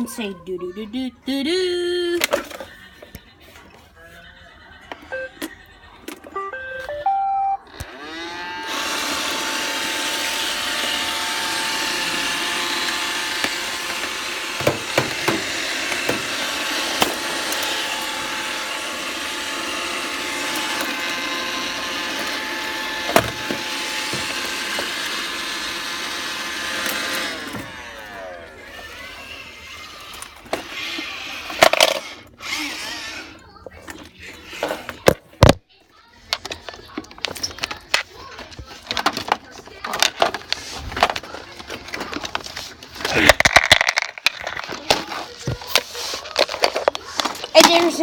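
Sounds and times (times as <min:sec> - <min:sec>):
robot vacuum electronic beeps: 0:05.1 - 0:05.4, 0:06.3 - 0:08.4
vacuum motors whirring: 0:06.3 - 0:35.1.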